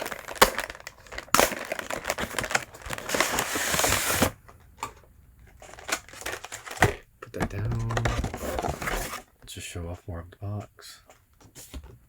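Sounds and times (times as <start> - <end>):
packaging crinkling: 0.0 - 4.5, 5.5 - 9.3.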